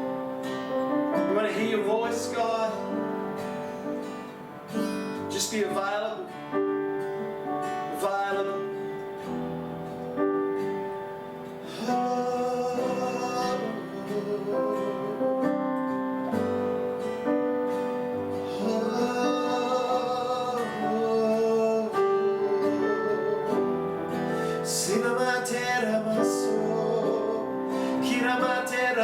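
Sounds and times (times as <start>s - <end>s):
acoustic guitar strumming: 0.0s - 29.0s
person singing: 1.1s - 3.1s, 5.2s - 6.6s, 7.6s - 9.1s, 11.6s - 15.6s, 18.2s - 29.0s.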